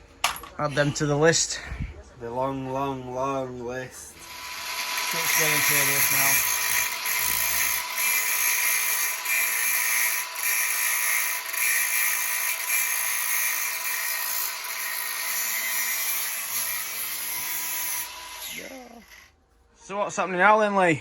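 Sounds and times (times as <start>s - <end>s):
power tool whining: 4.1s - 19.3s.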